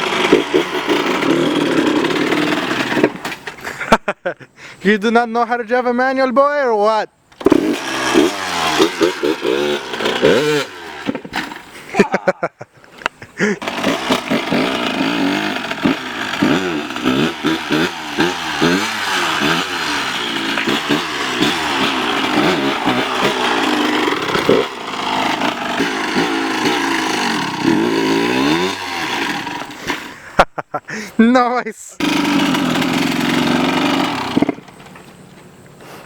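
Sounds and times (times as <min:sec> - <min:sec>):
dirt bike engine revving: 0:00.0 - 0:03.3, 0:07.4 - 0:12.0, 0:13.4 - 0:30.4, 0:32.0 - 0:34.8.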